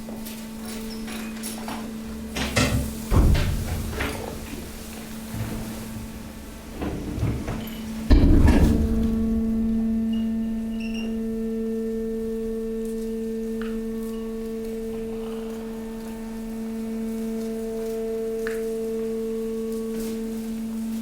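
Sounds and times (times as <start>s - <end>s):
hydraulic power unit humming: 0.0s - 21.0s
press knocks and creaks: 1.2s - 11.2s.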